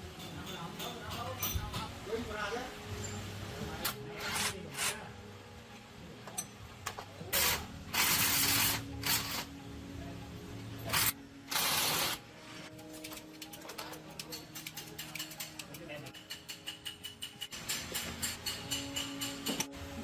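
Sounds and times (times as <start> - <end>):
compressed air hissing bursts: 7.3 - 9.5, 10.9 - 12.2.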